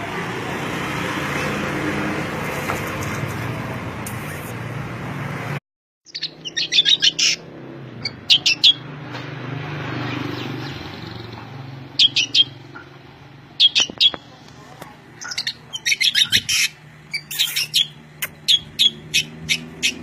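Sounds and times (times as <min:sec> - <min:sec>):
songbird chirping: 0:06.1 - 0:08.9, 0:10.0 - 0:13.0, 0:13.6 - 0:20.0.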